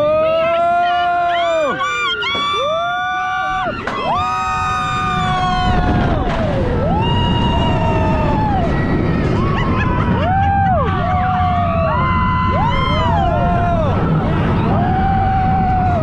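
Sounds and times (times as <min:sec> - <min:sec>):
riders screaming: 0:00.0 - 0:16.0
wind rushing over microphone: 0:03.3 - 0:16.0.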